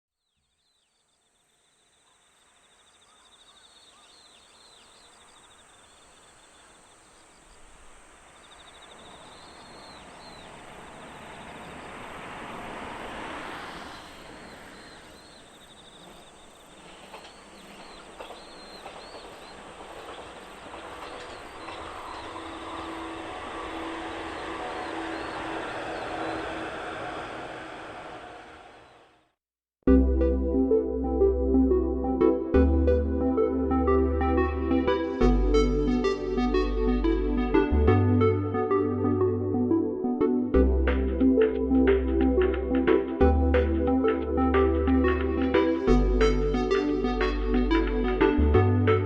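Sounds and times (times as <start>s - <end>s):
train running on tracks: 4.3s - 29.4s
high chirping calls: 13.6s - 26.8s.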